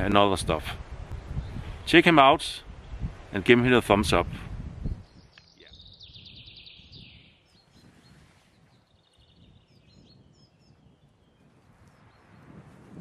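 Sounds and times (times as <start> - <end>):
songbird trilling: 4.9 - 12.4.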